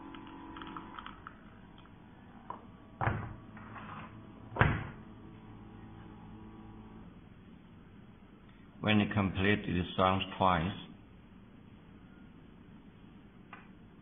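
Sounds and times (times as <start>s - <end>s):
espresso machine pump humming: 0.0s - 7.3s.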